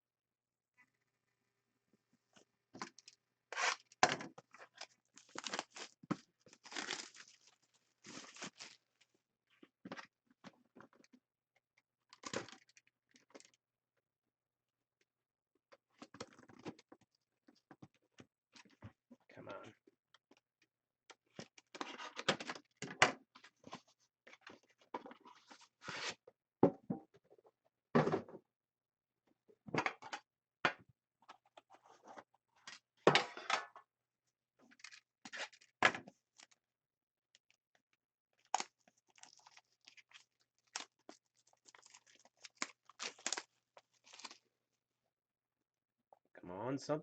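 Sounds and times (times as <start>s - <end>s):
packaging tearing and crinkling: 4.8s - 8.8s, 38.4s - 44.4s.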